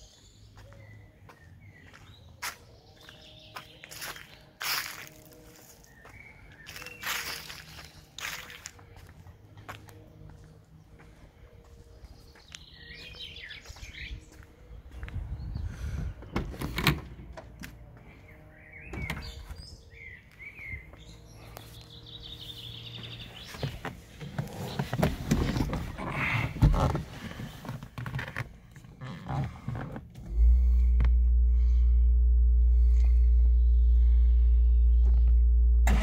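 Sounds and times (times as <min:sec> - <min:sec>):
car engine starting and running: 0:12.9 - 0:36.0.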